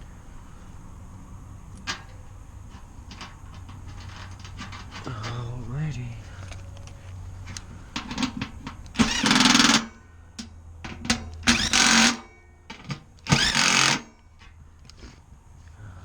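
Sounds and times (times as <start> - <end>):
cordless drill driving bolts: 6.2 - 15.0.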